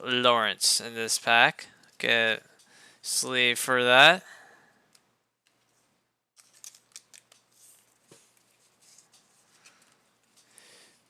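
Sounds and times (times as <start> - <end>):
trading cards rustling: 6.4 - 11.0.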